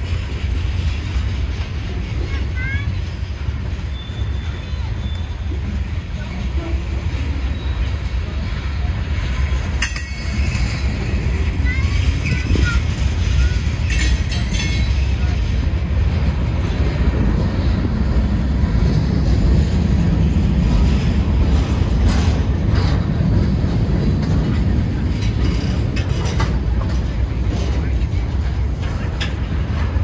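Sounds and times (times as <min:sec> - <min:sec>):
freight train rumbling past: 0:00.0 - 0:30.0
sharp metallic clanks: 0:09.6 - 0:12.6, 0:13.3 - 0:15.4.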